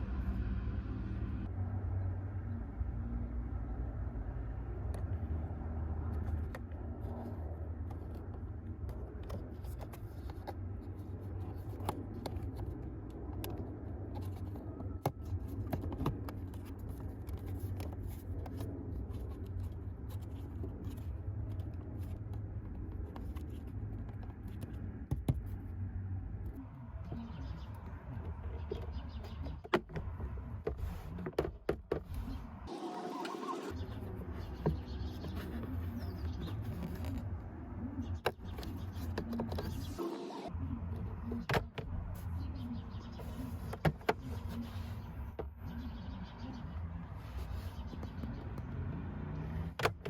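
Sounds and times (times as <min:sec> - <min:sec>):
plastic clicks and scrapes: 0:06.0 - 0:25.6, 0:34.4 - 0:40.0.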